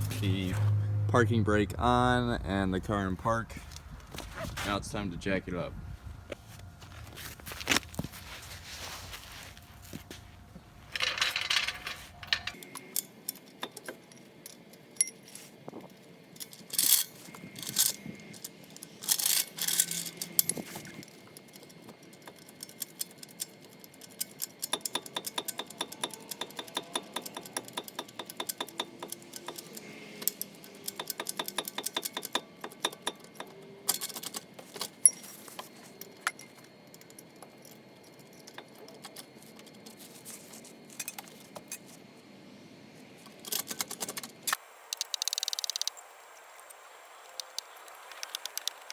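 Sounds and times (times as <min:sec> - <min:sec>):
car jack metal clinks: 0:11.0 - 0:15.4, 0:16.4 - 0:39.7
rapid even clicking: 0:44.9 - 0:46.0, 0:47.4 - 0:48.9.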